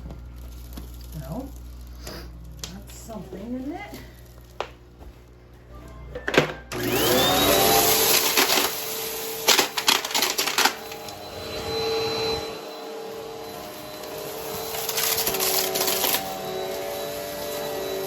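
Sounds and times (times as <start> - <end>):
vacuum cleaner motor hum: 0.0 - 18.0
debris crackling in vacuum: 6.8 - 12.4, 13.5 - 16.6.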